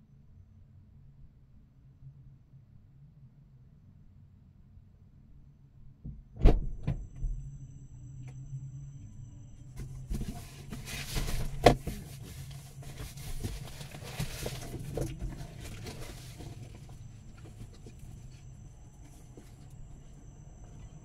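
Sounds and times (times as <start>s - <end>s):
steady low hum: 0.0s - 21.0s
rustling: 9.7s - 21.0s.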